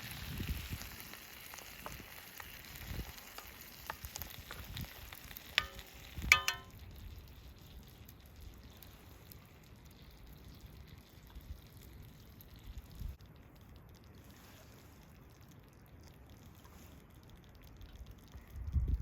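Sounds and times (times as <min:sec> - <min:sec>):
food sizzling in a frying pan: 0:00.0 - 0:08.2
utensil clinking against pan: 0:05.6 - 0:06.8.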